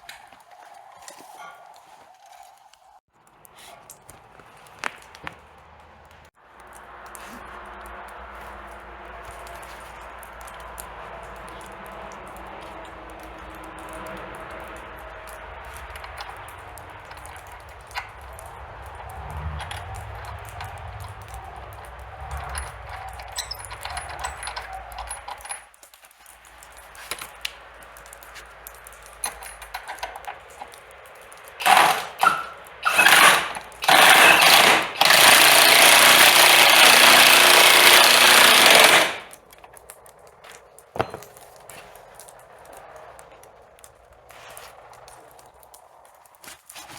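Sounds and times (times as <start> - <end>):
cordless power tool running: 31.6 - 39.4.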